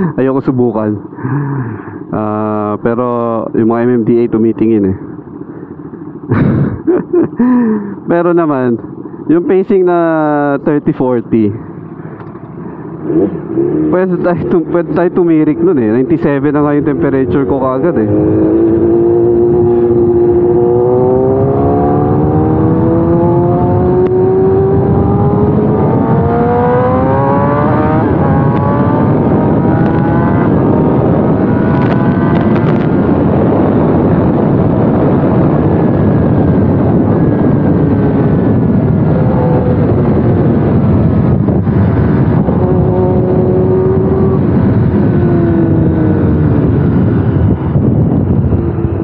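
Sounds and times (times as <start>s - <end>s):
wind noise: 8.7s - 49.0s
motorcycle engine accelerating: 11.7s - 49.0s.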